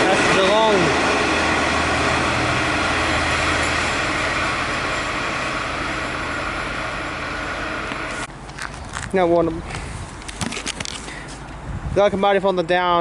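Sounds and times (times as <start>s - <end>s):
low hum: 0.0s - 8.4s
train wheels rumbling: 0.0s - 9.9s.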